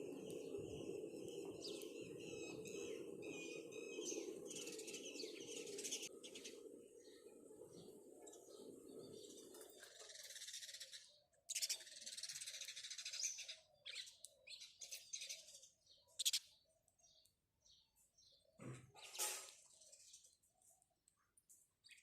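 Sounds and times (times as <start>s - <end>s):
sparrows chirping: 0.0s - 22.0s.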